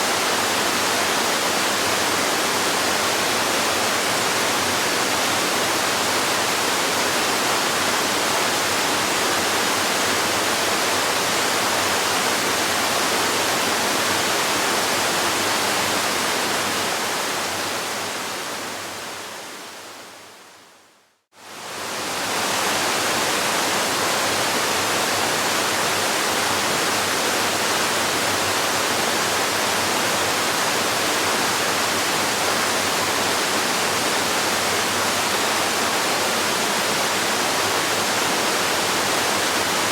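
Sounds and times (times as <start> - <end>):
waterfall rushing: 21.4 - 39.9.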